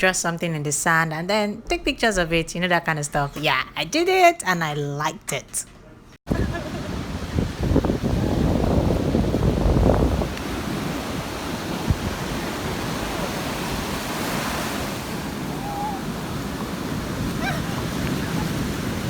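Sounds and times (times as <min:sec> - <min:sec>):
ocean surf washing: 0:06.3 - 0:19.0
wind buffeting microphone: 0:06.3 - 0:19.0.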